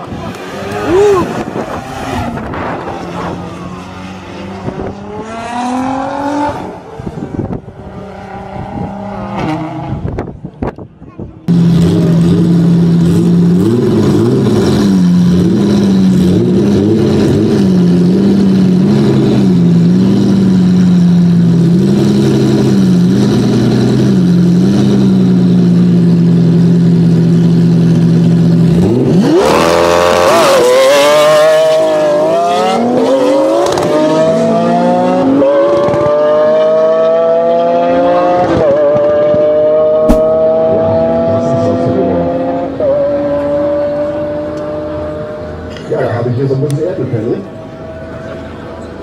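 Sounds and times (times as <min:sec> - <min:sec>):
cars accelerating through gears: 0:00.0 - 0:10.1, 0:28.7 - 0:45.7
car engines revving: 0:00.0 - 0:49.0.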